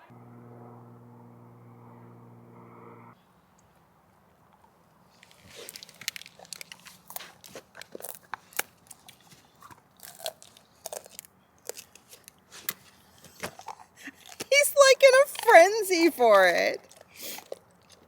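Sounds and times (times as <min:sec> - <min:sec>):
dog crunching a hard treat: 0:04.6 - 0:16.2, 0:16.8 - 0:18.0.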